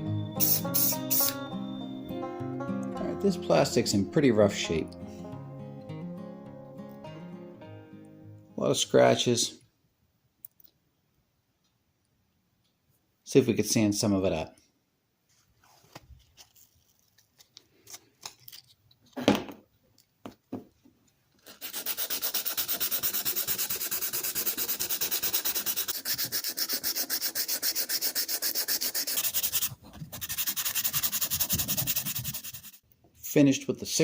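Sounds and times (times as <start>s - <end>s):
sandpaper rubbing on plastic: 21.4s - 32.8s.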